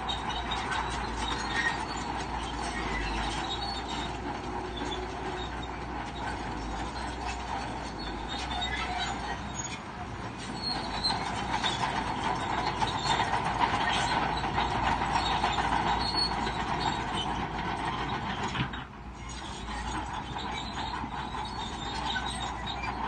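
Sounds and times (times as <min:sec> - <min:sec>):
bulldozer engine under load: 0:00.0 - 0:23.0
steel tracks squealing and clanking: 0:00.0 - 0:23.0.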